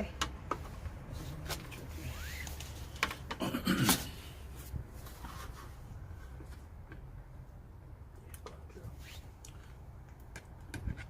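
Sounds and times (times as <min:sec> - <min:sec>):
rubbing and rustling: 0:04.5 - 0:06.7.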